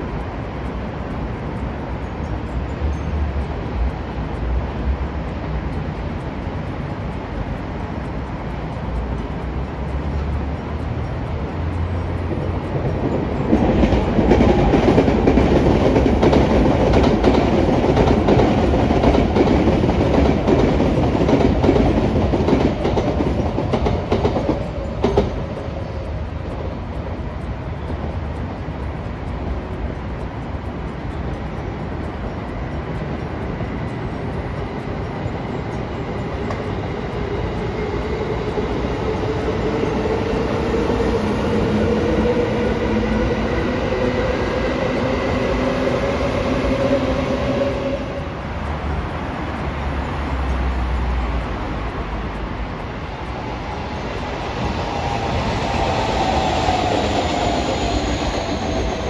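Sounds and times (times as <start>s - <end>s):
train rumble: 0.0s - 59.0s
wheels clicking over rail joints: 0.0s - 59.0s
rising whine: 24.4s - 59.0s.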